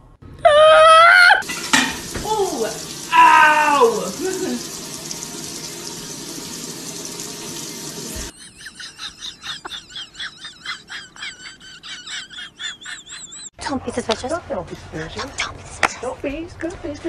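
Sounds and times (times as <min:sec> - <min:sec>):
food sizzling in a pan: 0:01.4 - 0:08.3.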